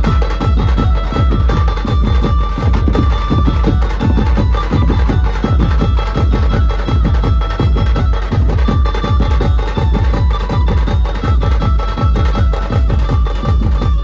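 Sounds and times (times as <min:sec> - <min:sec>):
fast dense drumming: 0:00.0 - 0:14.0
held melody line: 0:00.0 - 0:14.0.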